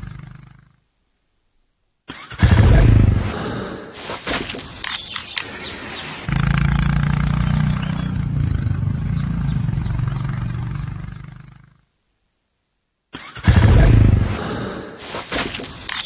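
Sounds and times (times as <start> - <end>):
motorcycle engine rumbling: 5.5 - 11.6, 13.6 - 14.4.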